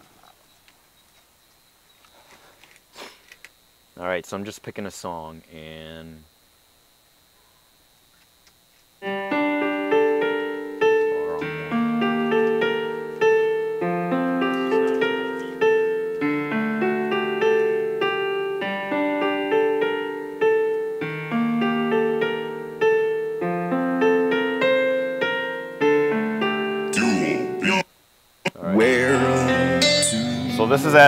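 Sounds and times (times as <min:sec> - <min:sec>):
solo piano through small speaker: 0:09.0 - 0:27.8.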